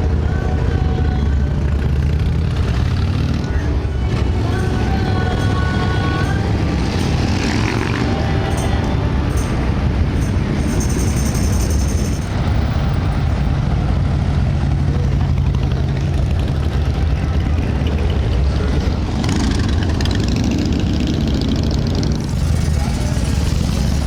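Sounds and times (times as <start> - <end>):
hubbub of people: 0.0 - 24.0
motorcycle engines running: 0.0 - 24.0.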